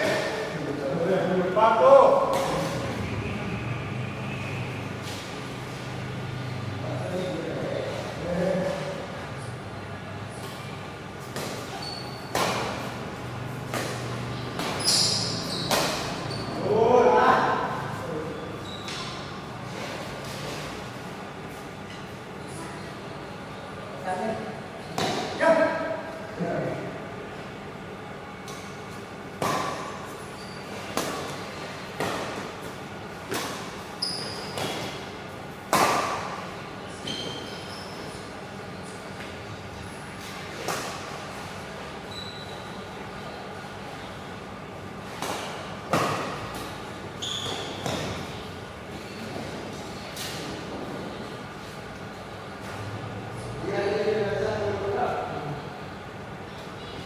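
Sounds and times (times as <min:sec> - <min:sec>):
racket hitting shuttlecock: 0:11.2 - 0:16.2, 0:29.4 - 0:30.1, 0:30.9 - 0:36.5, 0:45.1 - 0:48.4
shoe squeaks: 0:11.4 - 0:13.0, 0:13.8 - 0:16.7, 0:18.4 - 0:20.7, 0:30.2 - 0:30.9, 0:33.8 - 0:35.0, 0:36.9 - 0:38.3, 0:42.0 - 0:43.0, 0:47.1 - 0:49.4.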